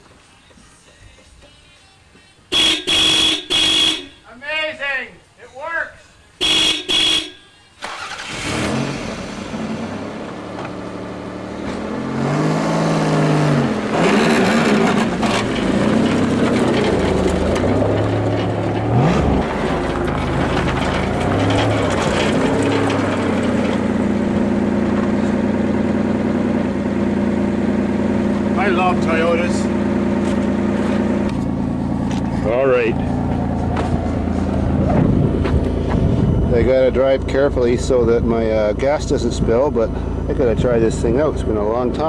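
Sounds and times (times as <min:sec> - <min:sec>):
car engine revving: 0:07.8 - 0:42.0
sharp thump: 0:34.8 - 0:36.2.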